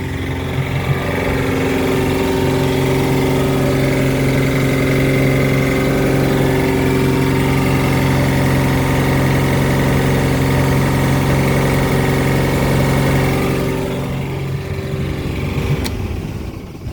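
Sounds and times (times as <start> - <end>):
boat engine knocking: 0.0 - 16.9.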